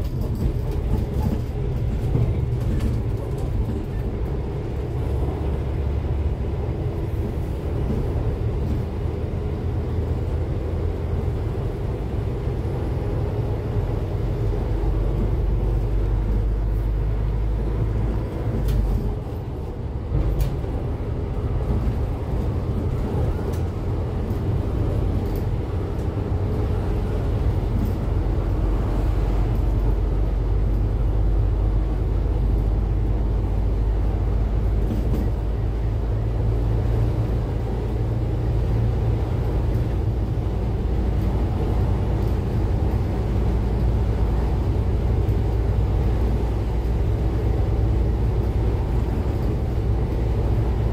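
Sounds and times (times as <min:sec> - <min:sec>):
bus engine drone: 0:00.0 - 0:50.9.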